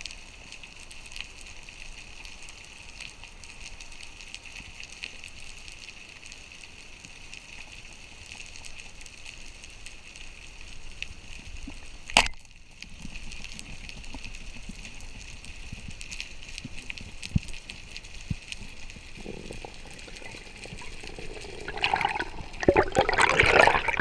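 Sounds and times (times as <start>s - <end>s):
snapping shrimp crackling underwater: 7.1s - 24.0s.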